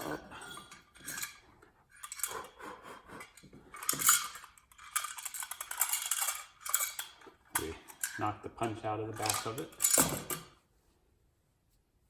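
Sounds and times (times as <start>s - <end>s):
rattling scrape: 0.0s - 2.4s, 3.2s - 8.3s.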